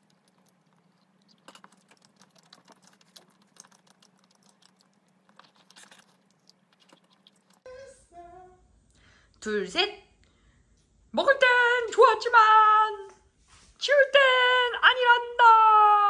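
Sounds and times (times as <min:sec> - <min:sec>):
mouth clicks and smacks chewing: 0:00.0 - 0:07.6
faint low hum: 0:00.0 - 0:16.0.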